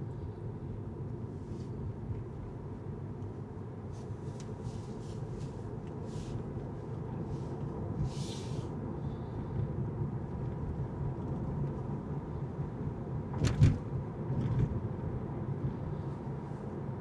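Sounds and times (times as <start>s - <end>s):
car driving rumble: 4.2s - 16.6s.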